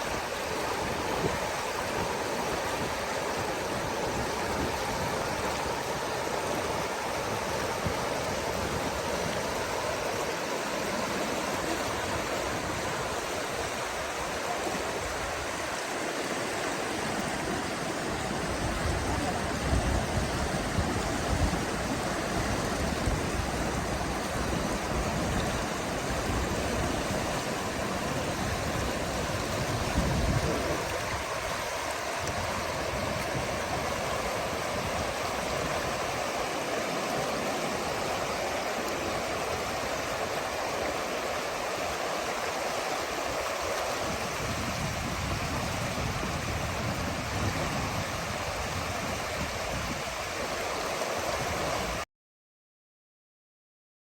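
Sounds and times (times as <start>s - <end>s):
river water flowing: 0.0s - 52.0s.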